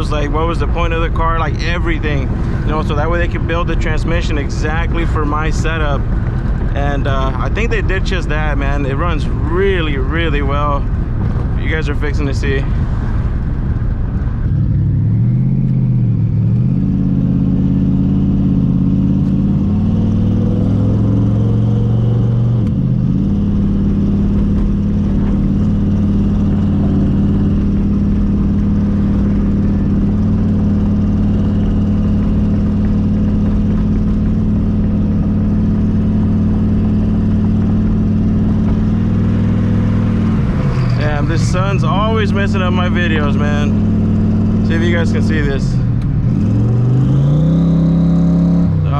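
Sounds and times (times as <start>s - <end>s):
car engine running: 0.0s - 48.9s.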